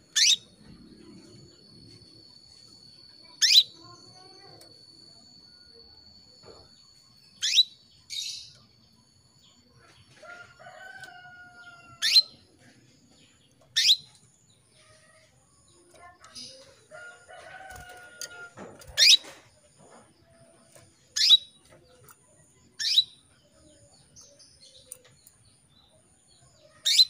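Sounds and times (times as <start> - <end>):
canary sharp upward chirps: 0.1 - 0.5, 3.4 - 3.8, 7.4 - 7.8, 11.9 - 12.4, 13.8 - 14.2, 21.2 - 21.6, 22.8 - 23.2
faint drawn-out bird calls: 3.3 - 4.4, 9.8 - 12.4.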